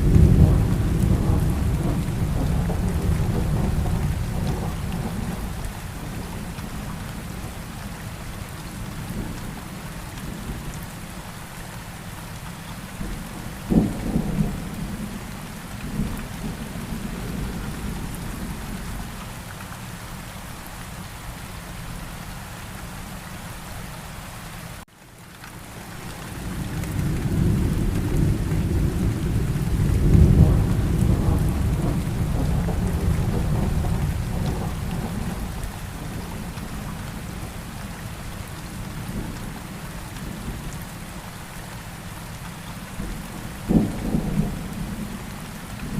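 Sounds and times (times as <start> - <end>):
sharp thunderclap: 0.0 - 5.5, 27.0 - 35.6
low rumble of thunder: 0.0 - 10.8, 12.6 - 19.2, 26.1 - 40.9, 42.9 - 45.9
steady rain: 0.0 - 45.9.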